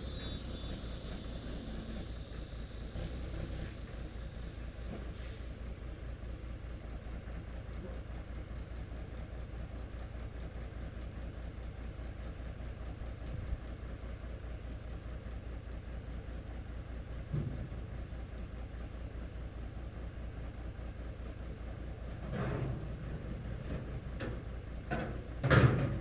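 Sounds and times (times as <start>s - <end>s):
diesel truck engine idling: 0.0s - 26.0s
short hiss: 4.9s - 5.6s.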